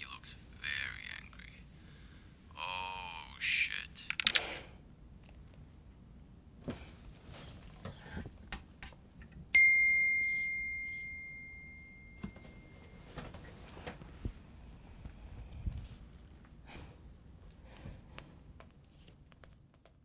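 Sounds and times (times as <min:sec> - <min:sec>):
bell-like ding: 0:09.6 - 0:13.1.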